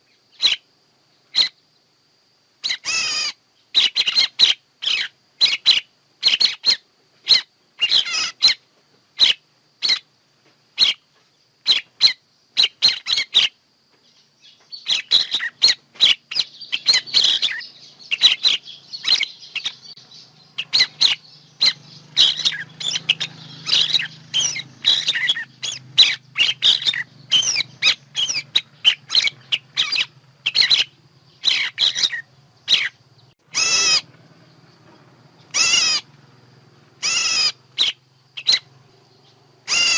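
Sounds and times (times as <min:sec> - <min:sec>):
overlapping bird chatter: 0:00.0 - 0:39.9.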